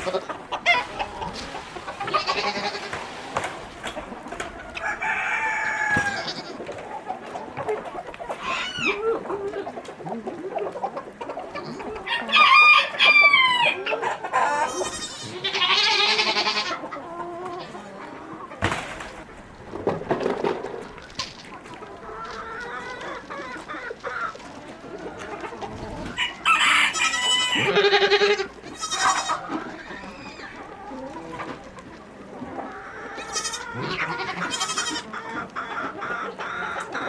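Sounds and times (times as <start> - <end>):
chickens clucking: 0.0 - 37.0
rooster crowing: 4.8 - 6.5, 12.1 - 13.8, 26.1 - 27.9.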